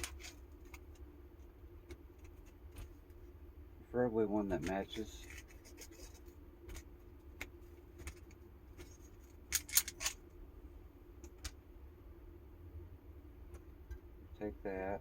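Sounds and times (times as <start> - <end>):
small parts clicking and rattling: 0.0 - 1.1, 4.6 - 10.3
faint steady hum: 0.0 - 15.0.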